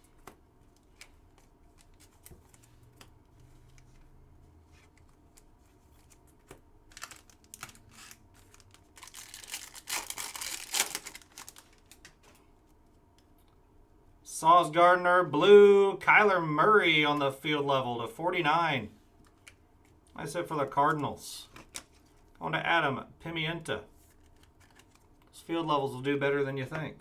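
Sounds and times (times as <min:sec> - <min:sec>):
trading cards clicking and rustling: 0:00.0 - 0:04.1, 0:04.7 - 0:12.4, 0:20.9 - 0:22.2, 0:24.1 - 0:25.3
foil pack crinkling and tearing: 0:06.9 - 0:12.4.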